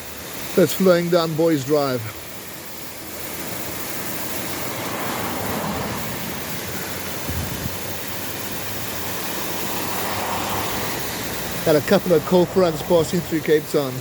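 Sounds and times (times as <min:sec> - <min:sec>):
waterfall rushing: 0:00.0 - 0:14.0
wind buffeting microphone: 0:07.2 - 0:07.9.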